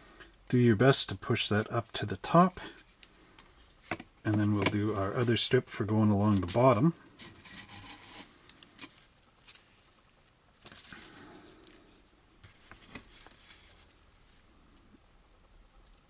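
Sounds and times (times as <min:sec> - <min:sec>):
scratchy rustle: 0:07.2 - 0:08.5.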